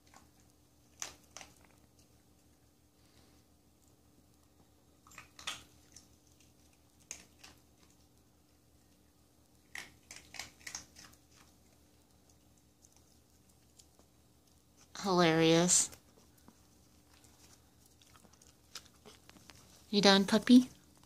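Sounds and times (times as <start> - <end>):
puppy chewing dry food: 0.0 - 21.0.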